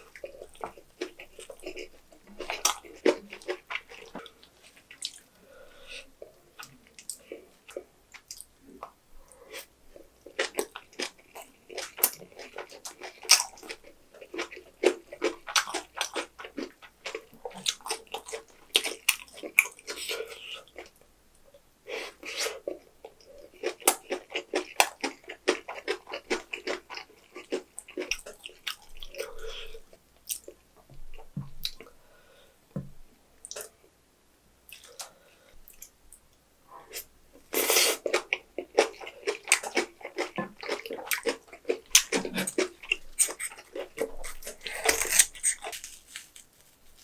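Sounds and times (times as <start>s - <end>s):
crunchy chewing: 0.0s - 5.3s, 6.6s - 21.0s, 22.0s - 31.9s, 36.9s - 47.0s.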